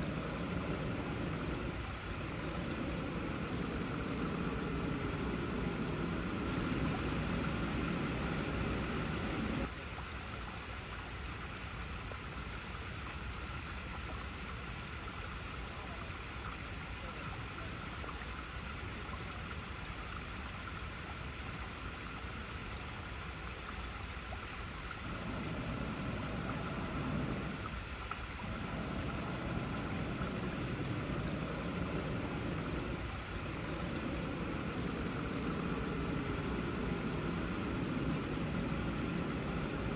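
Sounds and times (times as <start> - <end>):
deep rumble: 0.0 - 9.7, 25.0 - 27.8, 28.4 - 39.9
water rushing over rocks: 0.0 - 11.1, 24.3 - 39.9.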